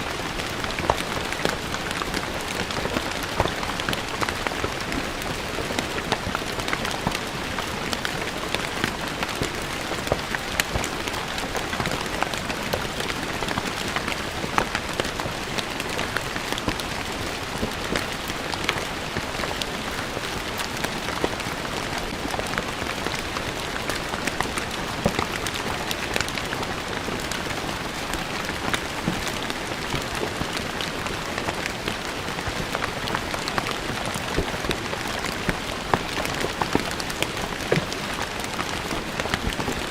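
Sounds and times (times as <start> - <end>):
rain on stone floor: 0.0 - 39.9.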